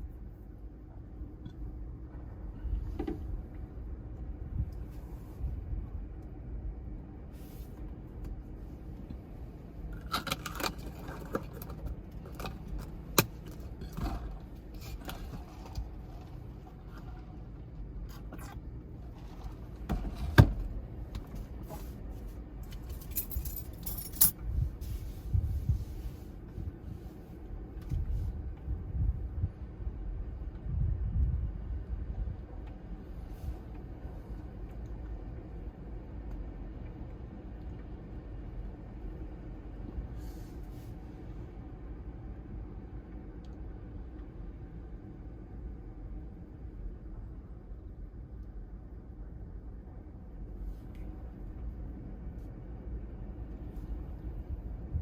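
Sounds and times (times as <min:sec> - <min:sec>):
wind: 0:00.0 - 0:55.0.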